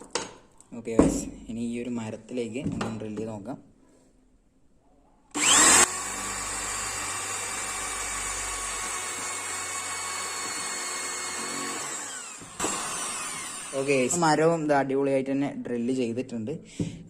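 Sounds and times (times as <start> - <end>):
electric drill drilling into wood: 5.3 - 14.3.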